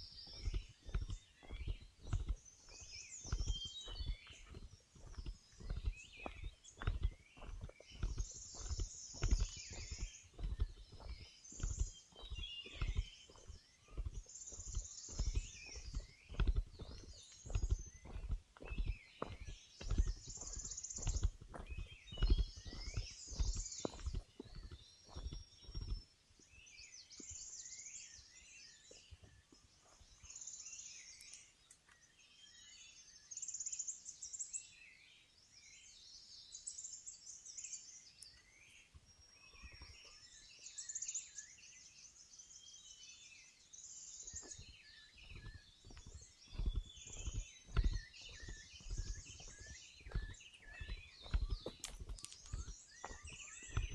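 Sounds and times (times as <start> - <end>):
footsteps on forest trail: 0.0 - 35.1, 37.2 - 53.9
birds singing: 0.0 - 53.9
high chirping bird call: 44.4 - 53.9.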